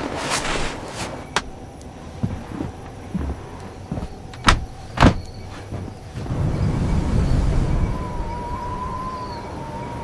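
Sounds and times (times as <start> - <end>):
blizzard wind rumbling: 0.0 - 10.0
thin wavering high tone: 6.9 - 10.0.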